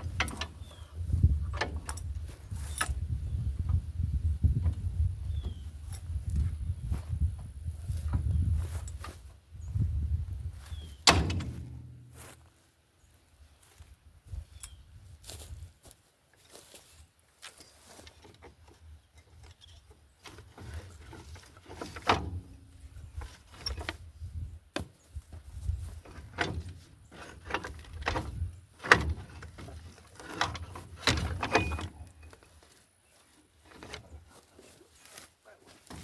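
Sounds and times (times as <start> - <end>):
clunks and knocks: 0.0 - 3.0, 10.9 - 12.4, 20.2 - 24.0, 24.8 - 32.5.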